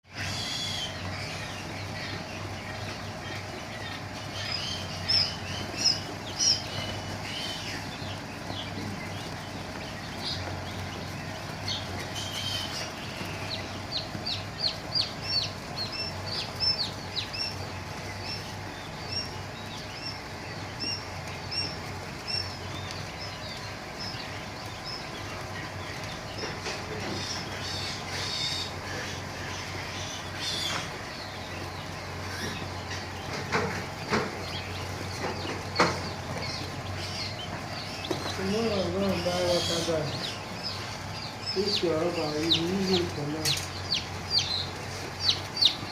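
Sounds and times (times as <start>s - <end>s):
quail chicks peeping: 0.0s - 45.9s
steady low hum: 0.1s - 45.9s.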